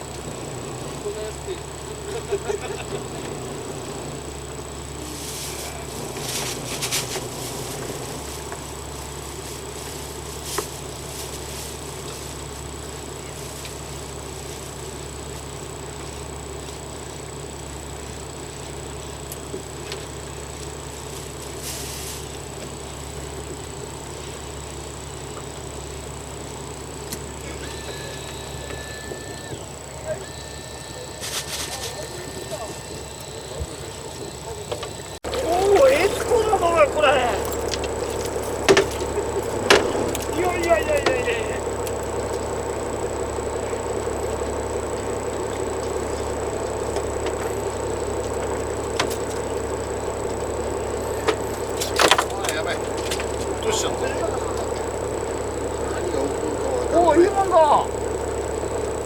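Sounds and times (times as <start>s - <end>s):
boat engine hum: 0.0s - 59.0s
thin high tone: 35.2s - 59.0s.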